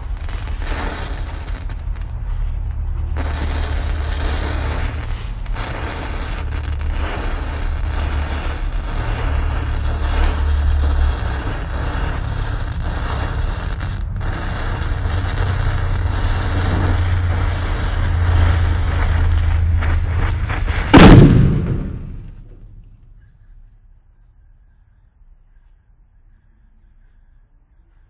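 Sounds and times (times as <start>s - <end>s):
firecracker bang: 0.0s - 22.8s
steady rumbling noise: 0.0s - 23.1s.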